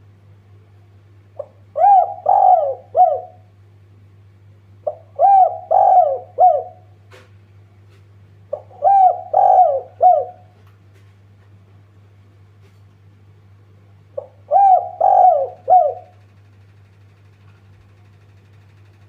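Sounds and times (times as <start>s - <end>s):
steady low hum: 0.0s - 19.0s
dove cooing: 1.4s - 3.6s, 4.8s - 7.0s, 8.5s - 10.6s, 14.2s - 16.2s.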